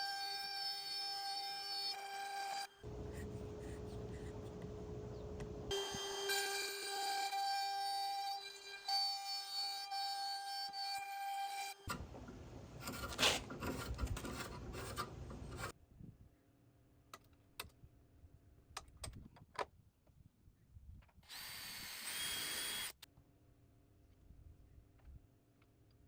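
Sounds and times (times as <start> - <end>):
scraping strokes on wood: 11.9 - 15.7.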